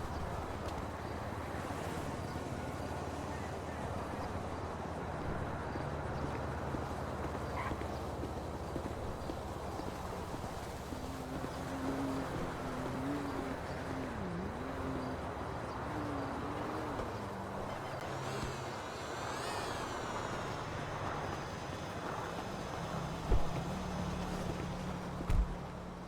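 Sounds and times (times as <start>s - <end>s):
car engines running: 0.0s - 26.0s.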